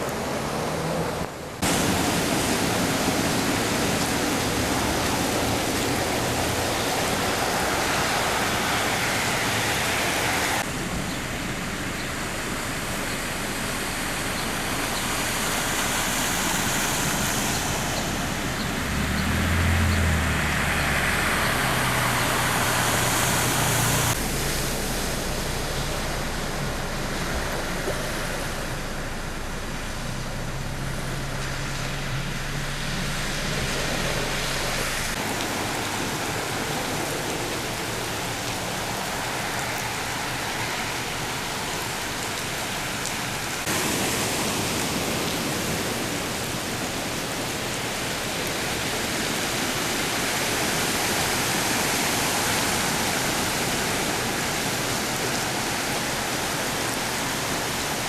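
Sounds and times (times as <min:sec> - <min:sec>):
low engine hum: 0:00.0 - 0:44.3
rushing floodwater: 0:00.0 - 0:58.0.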